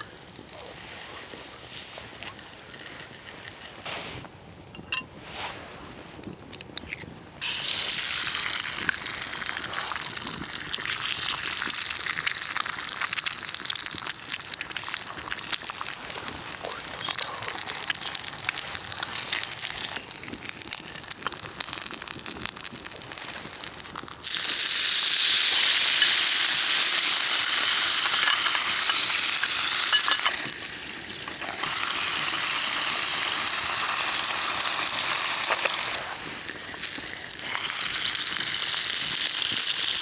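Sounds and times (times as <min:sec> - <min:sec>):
light clinks: 0:04.7 - 0:05.2
food sizzling in a pan: 0:07.4 - 0:16.2, 0:17.4 - 0:40.0.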